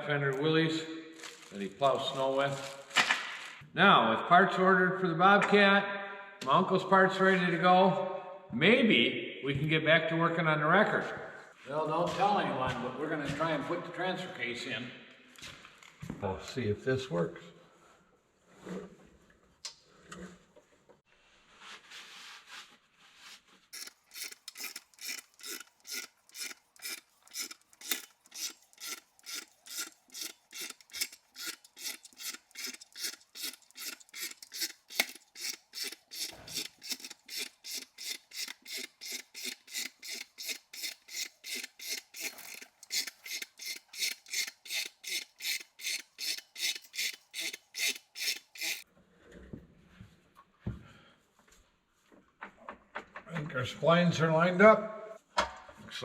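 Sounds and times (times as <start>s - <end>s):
hand jack pumping strokes: 23.8s - 48.8s.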